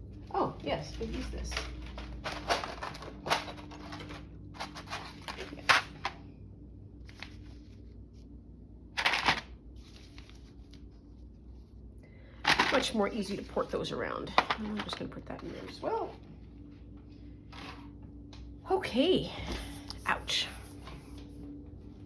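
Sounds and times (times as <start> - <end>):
paper rustling: 0.9 - 6.2, 7.0 - 8.2, 9.0 - 11.7.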